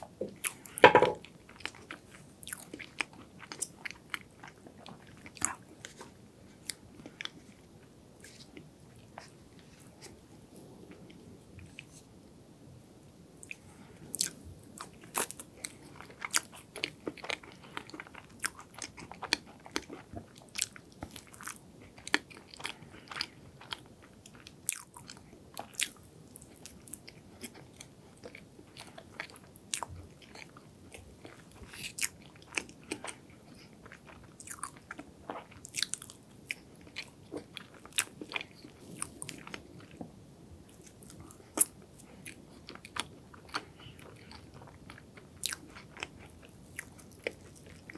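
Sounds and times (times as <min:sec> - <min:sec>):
crisp crunches of chewing: 0:13.4 - 0:40.0, 0:40.7 - 0:47.9.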